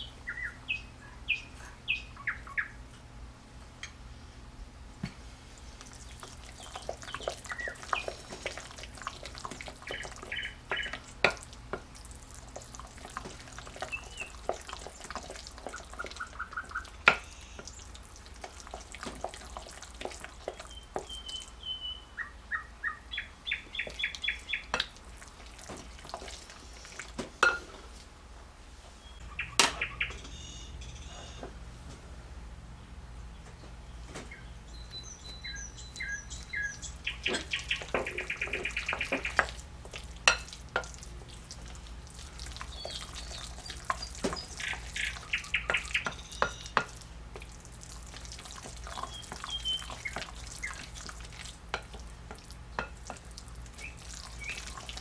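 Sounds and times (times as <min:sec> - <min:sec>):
small bird chirping: 0:00.0 - 0:02.8, 0:06.6 - 0:08.2, 0:09.9 - 0:11.0, 0:13.8 - 0:14.4, 0:20.6 - 0:24.7, 0:29.0 - 0:31.4, 0:33.4 - 0:39.5, 0:42.7 - 0:46.8, 0:48.9 - 0:50.9.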